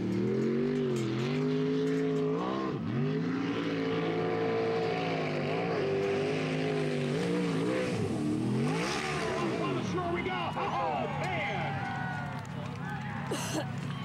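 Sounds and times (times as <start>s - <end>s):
boat engine revving: 0.0s - 10.3s.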